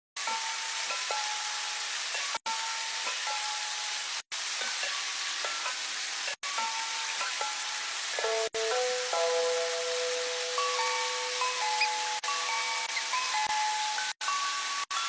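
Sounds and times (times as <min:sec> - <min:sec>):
food sizzling while frying: 0:00.2 - 0:15.0
soft music: 0:06.4 - 0:15.0.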